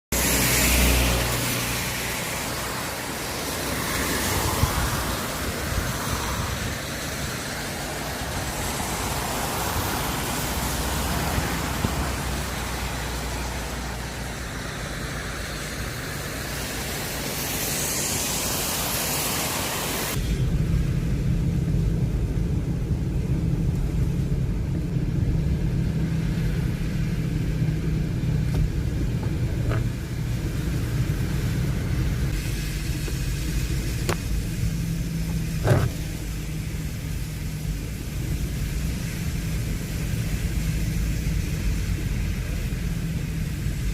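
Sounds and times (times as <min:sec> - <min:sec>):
car engine drone: 0:00.1 - 0:43.9
rain and tyre spray hiss: 0:00.1 - 0:43.9.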